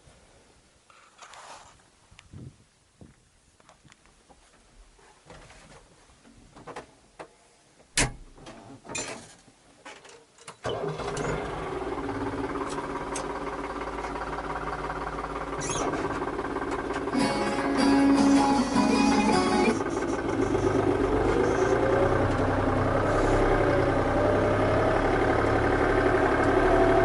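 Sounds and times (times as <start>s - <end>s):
tractor engine running: 10.6s - 27.0s.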